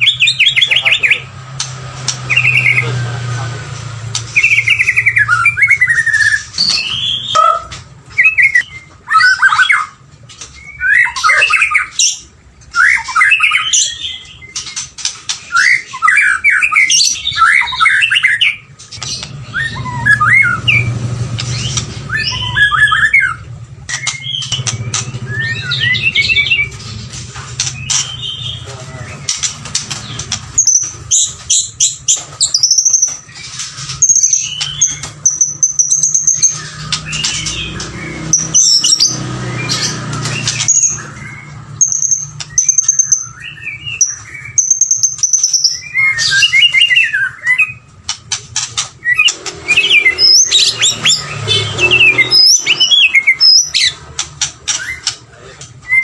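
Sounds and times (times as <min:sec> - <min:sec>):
bird singing whistled notes: 0:02.2 - 0:03.0, 0:04.3 - 0:09.9, 0:10.6 - 0:14.8, 0:15.5 - 0:26.8, 0:30.6 - 0:47.9, 0:49.0 - 0:54.0.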